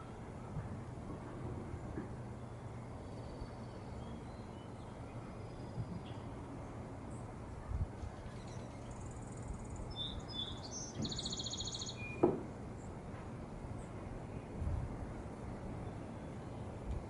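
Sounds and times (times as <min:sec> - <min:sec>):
outdoor background hiss: 0:00.0 - 0:17.0
bird chirping and trilling: 0:09.8 - 0:12.2.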